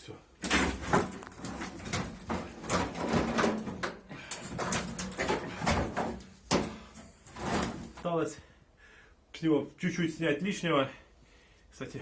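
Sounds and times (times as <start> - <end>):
metal parts knocking and clattering: 0.4 - 8.0.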